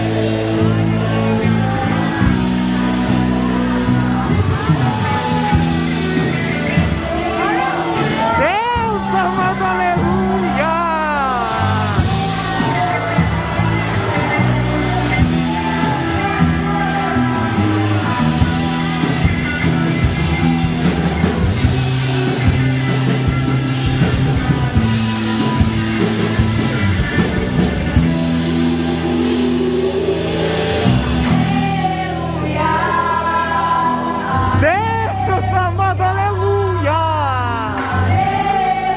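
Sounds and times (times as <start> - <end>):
gospel band playing: 0.0 - 38.9
person singing: 7.4 - 20.9, 33.9 - 38.9.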